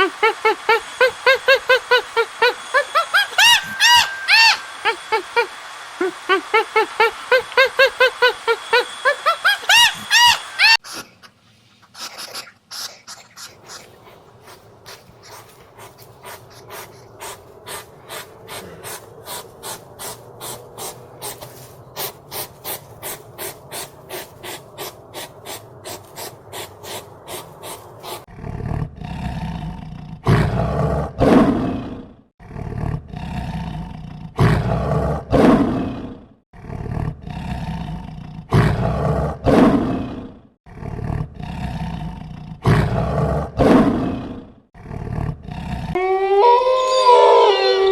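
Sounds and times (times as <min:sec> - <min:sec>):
large animal roaring: 0:18.2 - 0:20.2, 0:28.2 - 0:47.9.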